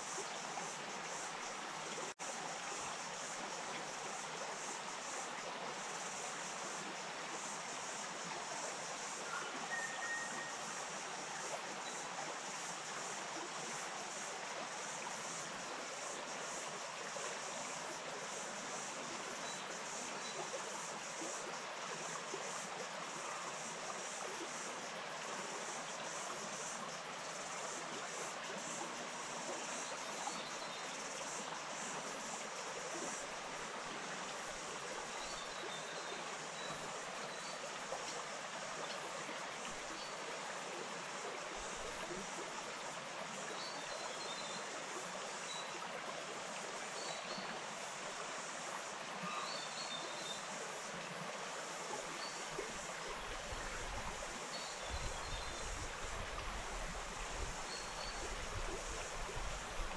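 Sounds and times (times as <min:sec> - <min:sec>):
stream rushing: 0:00.0 - 0:49.2, 0:50.2 - 0:59.9
faint high chirps: 0:09.3 - 0:10.8.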